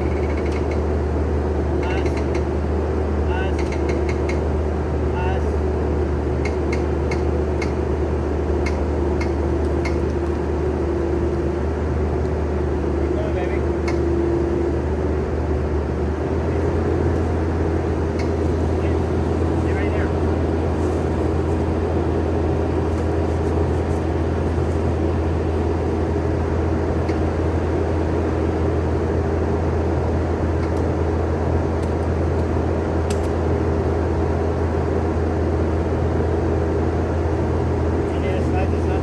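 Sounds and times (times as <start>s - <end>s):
skid steer engine running: 0.0s - 39.0s.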